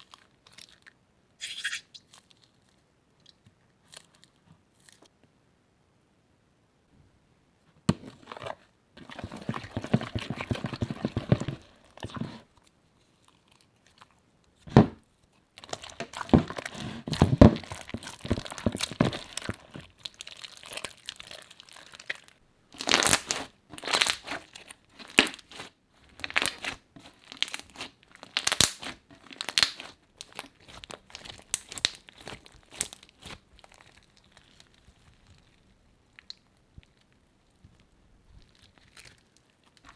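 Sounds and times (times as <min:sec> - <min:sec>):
crunchy slime crackling: 0:15.6 - 0:39.9.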